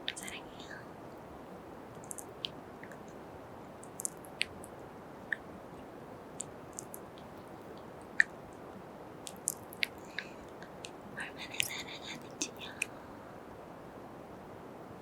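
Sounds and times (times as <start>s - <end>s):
low hiss: 0.0s - 15.0s
wet lip smacks and kisses: 6.4s - 7.3s.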